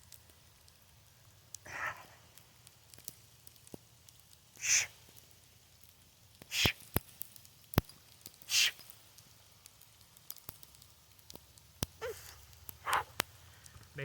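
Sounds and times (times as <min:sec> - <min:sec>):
forceful hissing exhales: 0:04.6 - 0:05.0, 0:06.5 - 0:06.8, 0:08.5 - 0:08.8.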